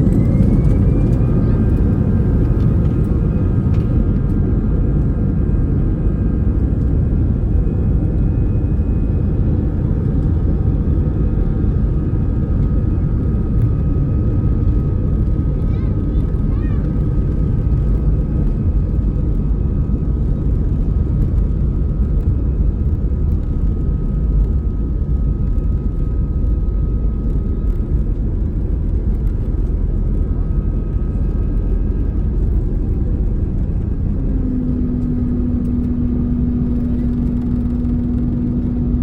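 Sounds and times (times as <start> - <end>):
airplane engines roaring in cabin: 0.0 - 39.0
steady hum: 27.0 - 39.0.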